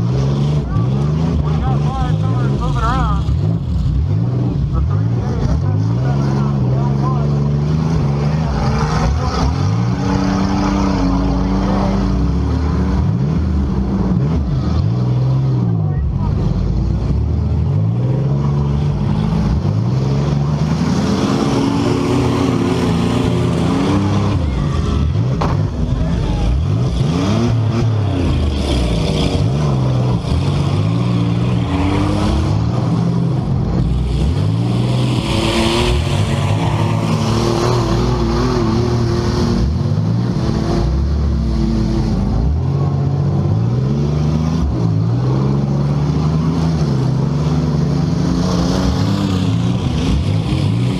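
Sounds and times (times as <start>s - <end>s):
car engines revving: 0.0s - 50.9s.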